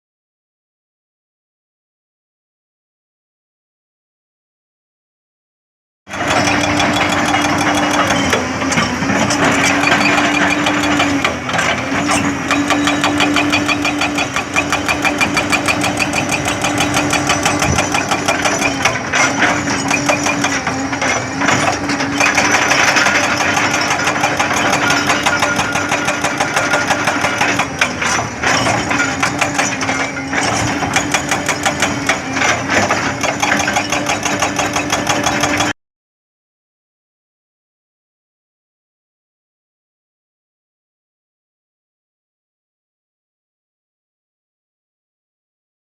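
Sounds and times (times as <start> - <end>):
excavator diesel engine whining: 6.1 - 35.7.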